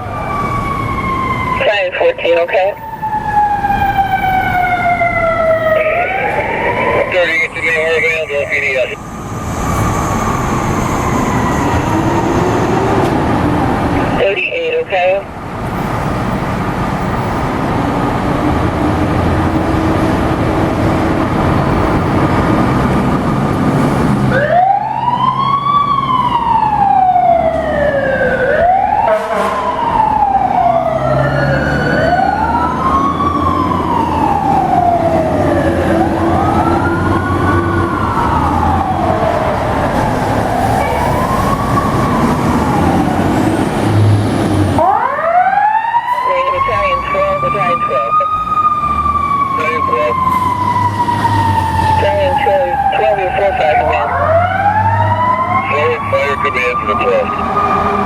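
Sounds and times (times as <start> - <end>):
engine and road noise: 0.0 - 58.0
fire truck siren wailing: 0.0 - 58.0.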